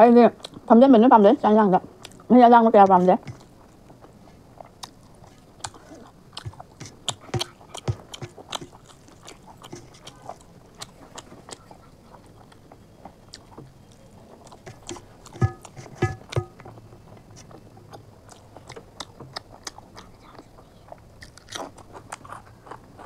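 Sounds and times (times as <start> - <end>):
wet chewing mouth sounds: 3.2 - 23.0.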